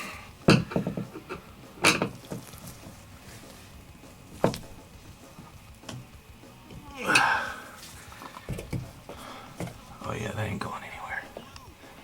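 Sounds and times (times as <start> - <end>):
shelf rattle: 0.5 - 3.0.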